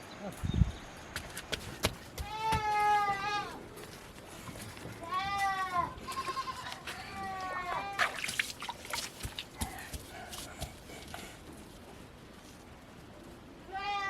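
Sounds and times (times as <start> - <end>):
goats bleating: 2.2 - 3.6, 5.0 - 8.2.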